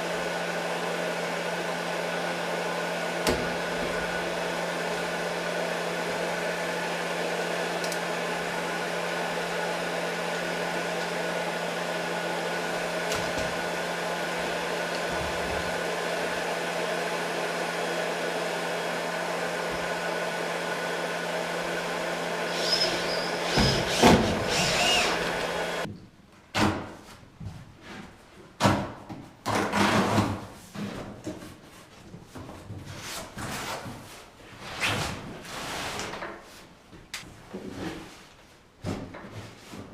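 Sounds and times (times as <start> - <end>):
shop vacuum running: 0.0 - 25.9.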